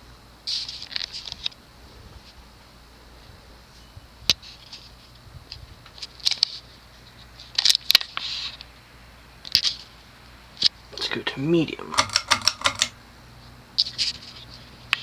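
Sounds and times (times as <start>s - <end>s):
ceiling fan motor hum: 0.0s - 15.0s
crackly rustles: 0.4s - 11.1s, 11.9s - 15.0s
sharp clicks: 11.8s - 13.0s.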